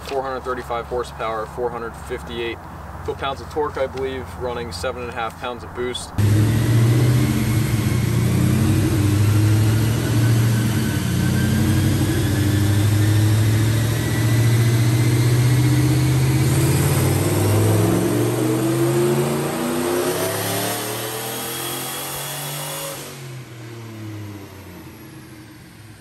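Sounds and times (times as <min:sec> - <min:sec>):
engine running on dyno: 0:06.2 - 0:26.0
faint rising whine: 0:06.2 - 0:26.0.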